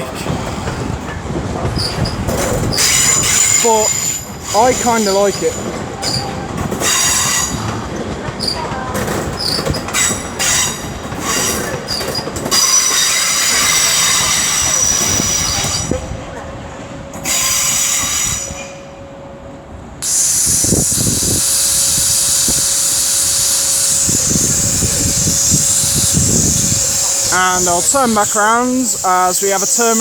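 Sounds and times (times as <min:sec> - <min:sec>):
train brakes and wheels squealing: 0:00.0 - 0:16.4, 0:17.2 - 0:19.0, 0:20.0 - 0:30.0
loud steady air hiss: 0:20.0 - 0:30.0.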